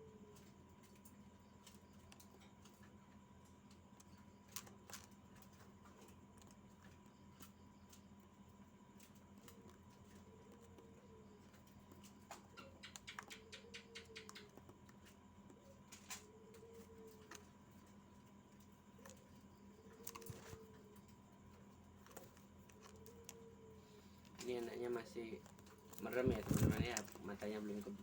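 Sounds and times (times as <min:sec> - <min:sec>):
faint electrical hum: 0:00.0 - 0:28.0.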